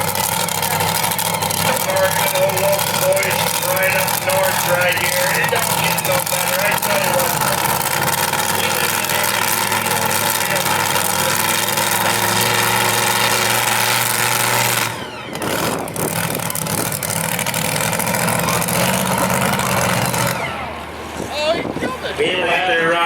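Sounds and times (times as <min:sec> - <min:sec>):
engine running under load: 0:00.0 - 0:23.0.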